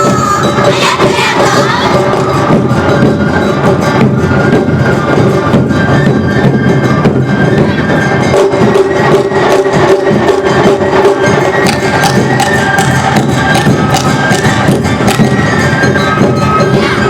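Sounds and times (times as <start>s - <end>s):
drums beating: 0.0s - 17.0s
flute: 0.0s - 17.0s
hand gongs clanging: 10.5s - 17.0s.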